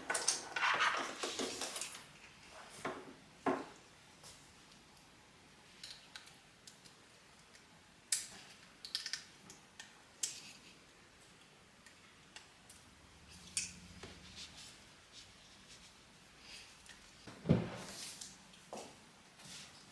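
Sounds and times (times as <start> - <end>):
small objects clicking and tapping: 5.8 - 10.6.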